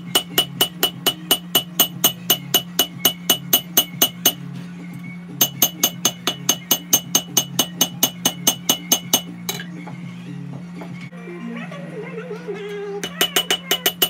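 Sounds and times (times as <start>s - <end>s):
hammer striking steel on anvil: 0.0s - 4.4s, 5.4s - 9.7s, 13.0s - 14.0s.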